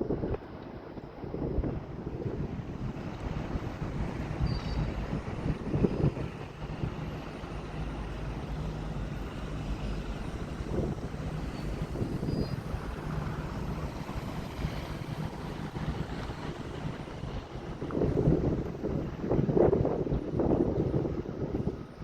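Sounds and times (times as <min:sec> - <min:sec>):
low mechanical drone: 0:00.0 - 0:22.0
wind buffeting microphone: 0:00.0 - 0:22.0.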